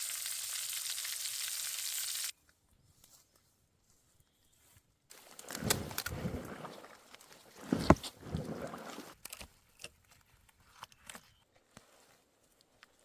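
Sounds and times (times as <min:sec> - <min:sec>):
steak sizzling in a skillet: 0:00.0 - 0:02.3
rustling with clicks and knocks: 0:05.1 - 0:13.0.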